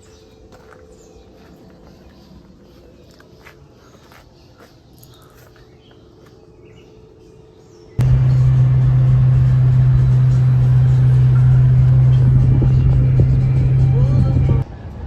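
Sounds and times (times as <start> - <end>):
steady low hum: 8.0 - 14.6
noisy wash: 8.0 - 14.9.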